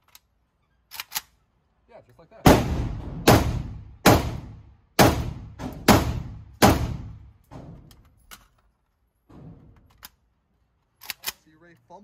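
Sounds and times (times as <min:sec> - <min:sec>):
rifle shots echoing indoors: 0:02.5 - 0:07.9.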